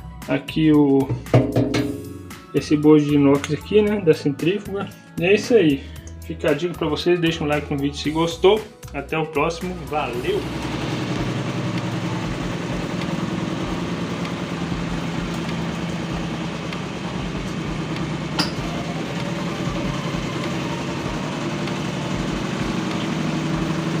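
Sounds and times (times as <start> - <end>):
motor humming: 10.1 - 24.0.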